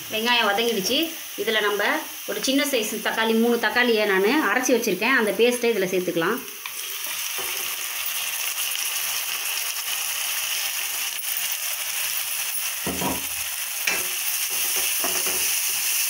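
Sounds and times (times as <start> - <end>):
onions sizzling in pan: 0.0 - 16.0
spoon knocking against pan: 13.9 - 15.5.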